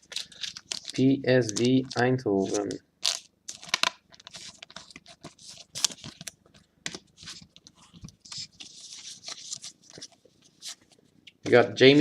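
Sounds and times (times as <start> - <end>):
pack wrappers crinkling and tearing: 0.0 - 6.4.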